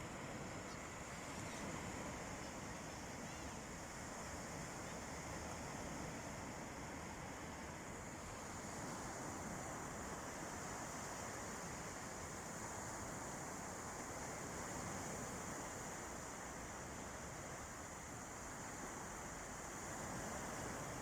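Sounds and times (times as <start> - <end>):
sea surf washing on beach: 0.0 - 21.0.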